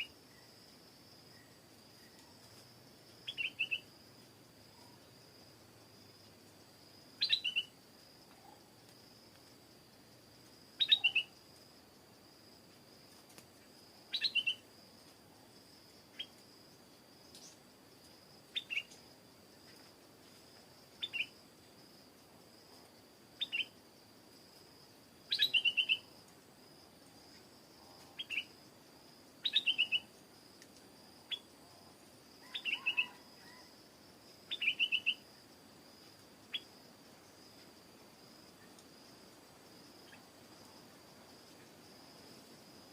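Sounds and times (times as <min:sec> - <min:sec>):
bulbul calling: 0:07.2 - 0:07.7, 0:10.8 - 0:11.3, 0:25.3 - 0:26.0, 0:34.5 - 0:35.2.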